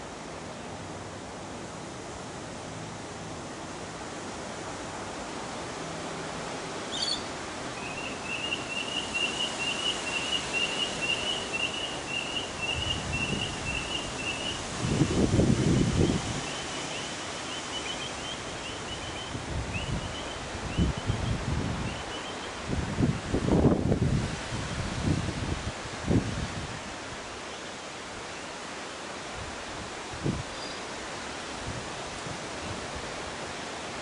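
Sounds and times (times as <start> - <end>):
bird chirping: 6.9 - 14.6
wind buffeting microphone: 12.3 - 16.6, 18.9 - 27.2.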